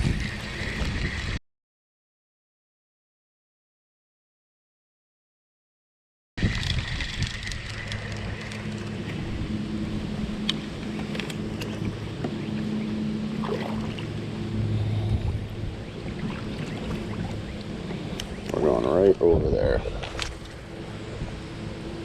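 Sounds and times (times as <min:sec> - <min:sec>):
wind: 0:00.0 - 0:01.4, 0:06.4 - 0:22.0
small boat motor humming: 0:06.4 - 0:22.0
water noise: 0:06.4 - 0:22.0.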